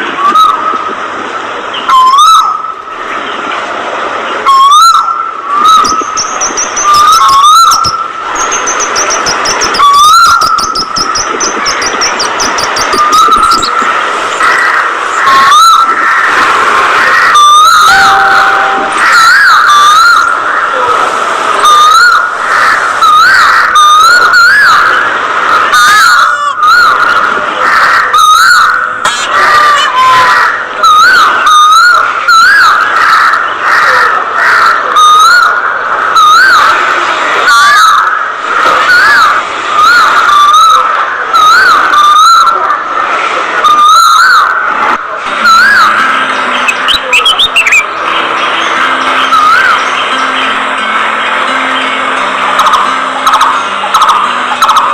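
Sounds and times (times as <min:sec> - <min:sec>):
budgerigars chirping and chattering: 0:05.6 - 0:16.3, 0:45.4 - 0:50.6.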